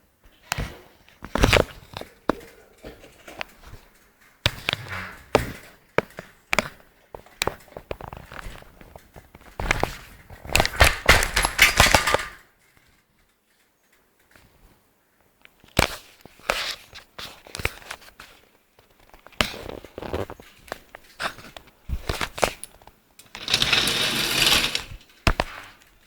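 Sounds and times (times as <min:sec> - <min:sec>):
clattering and rattling: 0:01.3 - 0:12.8, 0:20.9 - 0:26.0.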